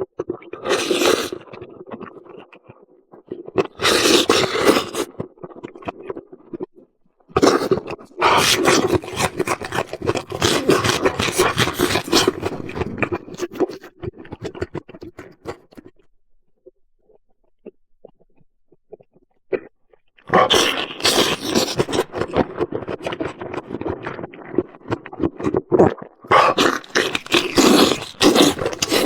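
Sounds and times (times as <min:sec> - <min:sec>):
wet chewing and biting: 0:00.2 - 0:02.6, 0:03.4 - 0:06.7, 0:07.4 - 0:16.0, 0:20.3 - 0:29.0.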